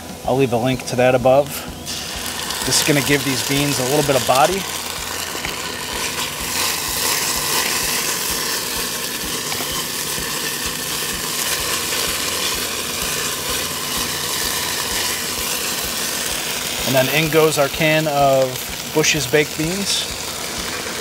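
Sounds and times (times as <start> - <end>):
onions sizzling in a pot: 0.0 - 21.0
wooden spoon stirring and scraping: 2.0 - 17.3.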